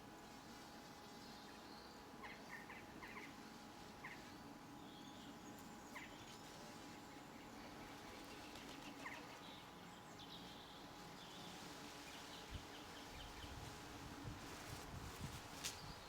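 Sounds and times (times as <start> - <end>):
low background noise: 0.0 - 16.0.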